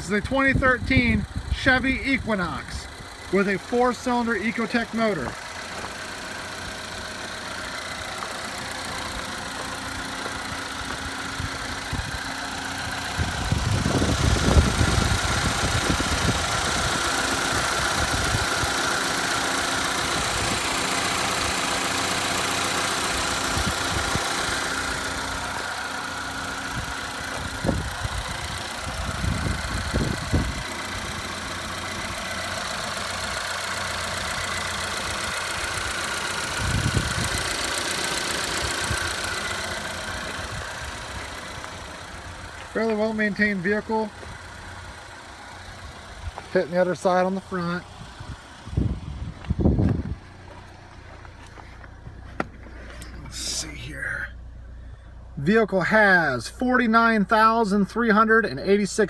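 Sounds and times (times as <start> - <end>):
car engine idling: 0.0 - 59.0
dull low thumps: 9.0 - 17.1, 47.9 - 53.7.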